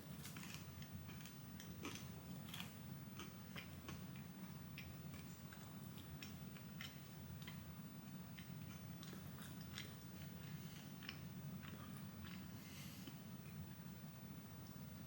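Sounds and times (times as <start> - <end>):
low steady hum: 0.0 - 15.0
crunchy chewing: 0.1 - 7.6, 8.3 - 13.6.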